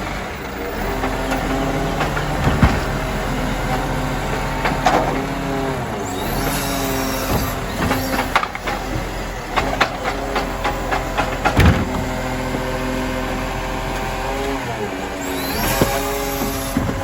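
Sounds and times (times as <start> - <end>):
truck diesel engine running: 0.0 - 17.0
knocks and clatter: 1.0 - 5.3, 7.2 - 12.6, 15.6 - 17.0
heavy thump: 2.4 - 3.0, 11.2 - 12.2.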